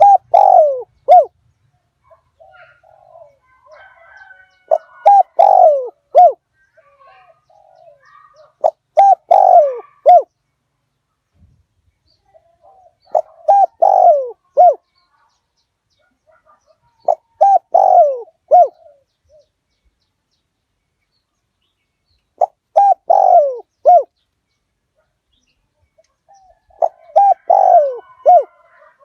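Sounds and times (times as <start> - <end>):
dove cooing: 0.0 - 1.4, 2.4 - 10.3, 12.4 - 14.8, 16.3 - 19.5, 22.4 - 24.1, 26.3 - 29.0.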